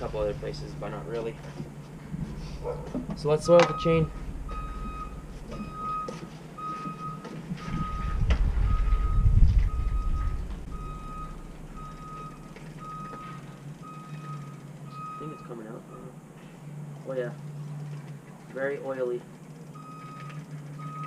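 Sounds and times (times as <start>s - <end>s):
low rumble: 2.0s - 6.1s, 7.6s - 13.9s
reversing alarm beeping: 3.4s - 16.2s, 19.7s - 21.0s.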